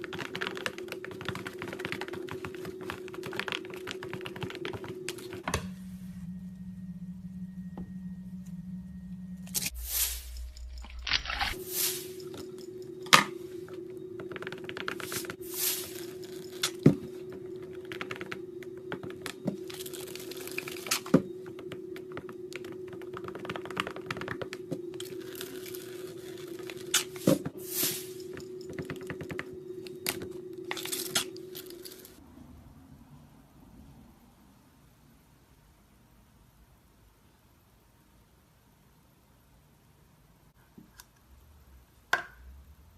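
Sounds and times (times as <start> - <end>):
steady low hum: 0.0 - 32.2.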